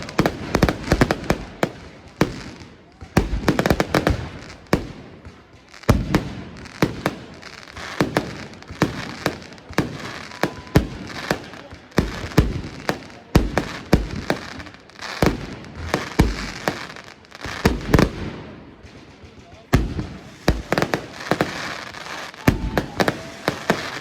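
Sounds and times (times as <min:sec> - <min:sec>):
fireworks bangs: 0:00.0 - 0:24.0.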